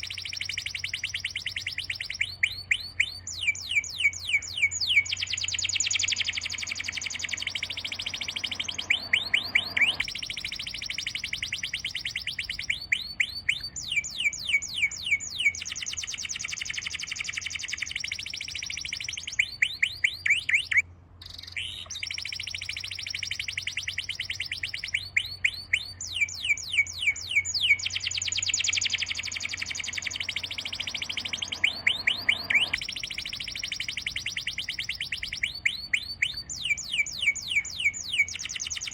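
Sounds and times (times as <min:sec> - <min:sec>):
birds twittering: 0:00.0 - 0:38.9
bird sweeping notes: 0:04.3 - 0:12.7, 0:27.3 - 0:35.5.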